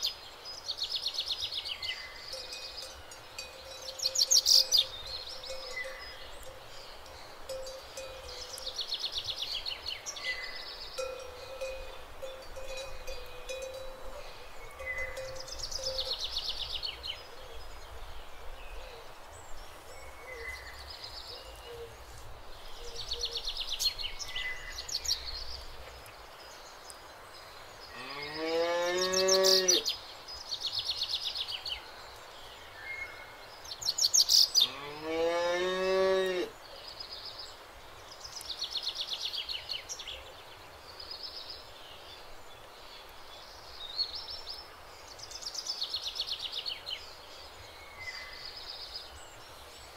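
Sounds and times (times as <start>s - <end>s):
small birds chirping: 0.0s - 34.9s, 35.9s - 49.9s
cows mooing: 34.6s - 36.5s.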